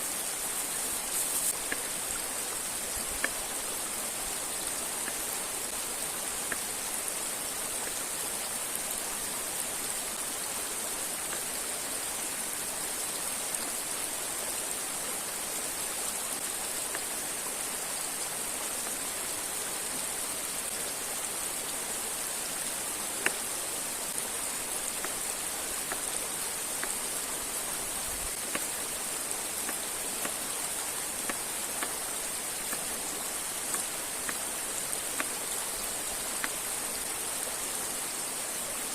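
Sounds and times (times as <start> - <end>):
river and waterfall rushing: 0.0 - 38.9
faint ticks: 1.1 - 2.0, 3.0 - 3.5, 5.0 - 5.3, 6.4 - 6.7, 23.2 - 23.5, 28.4 - 28.8, 33.7 - 34.5, 35.1 - 35.4.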